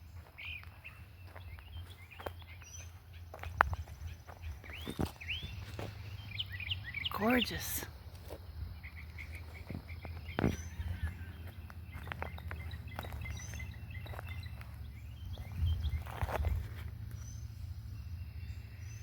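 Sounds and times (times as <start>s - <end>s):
bird chirps and calls: 0.2s - 19.0s
steady low rumble: 7.9s - 19.0s.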